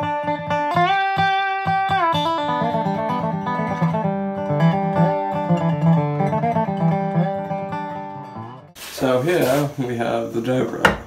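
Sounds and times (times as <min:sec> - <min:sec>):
plucked acoustic guitar: 0:00.0 - 0:08.8.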